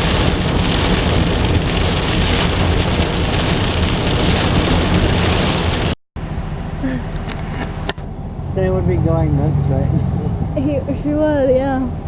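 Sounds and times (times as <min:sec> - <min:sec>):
heavy rain on a car: 0:00.0 - 0:06.0
car rumbling on road: 0:00.0 - 0:12.0.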